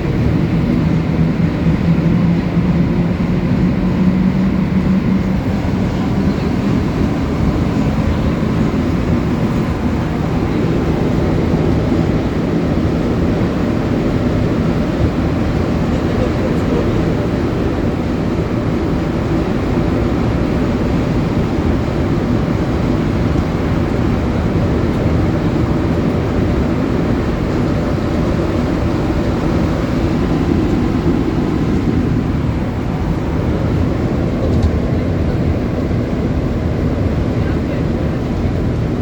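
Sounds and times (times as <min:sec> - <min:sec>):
metro train rumbling in tunnel: 0:00.0 - 0:39.0.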